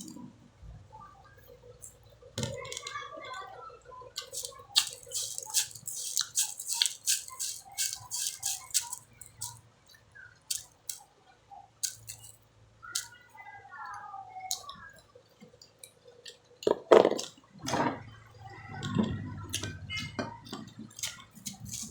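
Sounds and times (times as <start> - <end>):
crunching and chewing: 4.1 - 11.1, 11.8 - 12.4, 14.5 - 17.8, 18.7 - 21.9.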